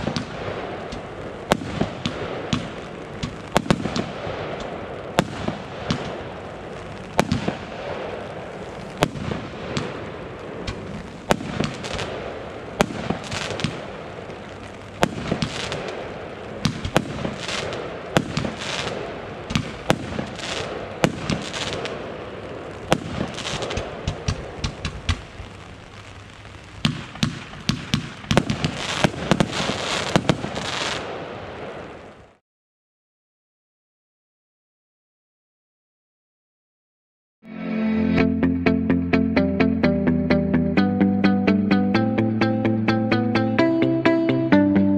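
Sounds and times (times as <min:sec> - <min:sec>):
fireworks bangs: 0:00.0 - 0:32.4
fireworks crackling: 0:00.0 - 0:32.4.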